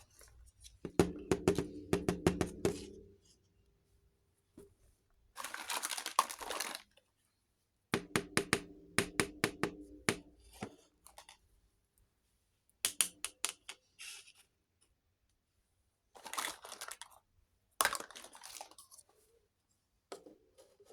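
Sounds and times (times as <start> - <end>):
packaging rustling: 5.4 - 7.0.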